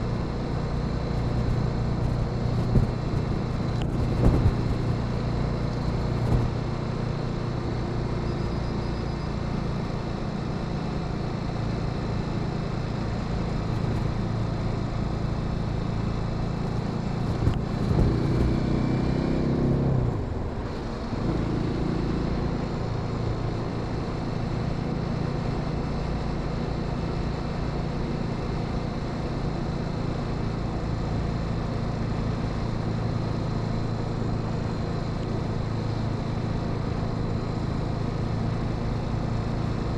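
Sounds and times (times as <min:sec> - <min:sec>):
motorcycle engine cruising: 0:00.0 - 0:24.3
wind and road noise: 0:00.0 - 0:39.9.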